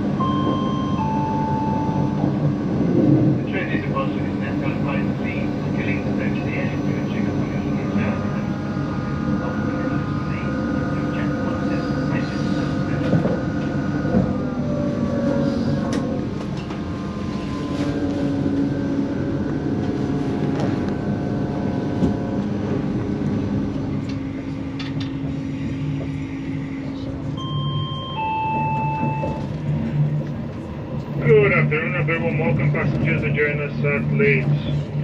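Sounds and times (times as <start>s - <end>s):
train engine hum and rumble: 0.0s - 35.0s
announcement over pa: 31.2s - 34.8s.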